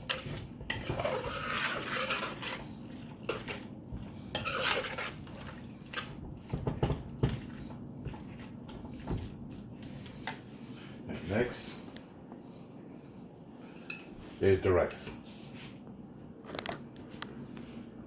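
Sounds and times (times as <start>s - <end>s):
utensil scraping and clacking on pan: 0.0s - 9.0s.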